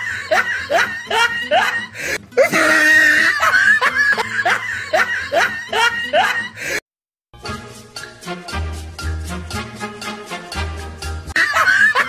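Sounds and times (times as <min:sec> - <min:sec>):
person laughing: 0:00.0 - 0:06.6, 0:11.4 - 0:12.0
music: 0:00.0 - 0:12.0.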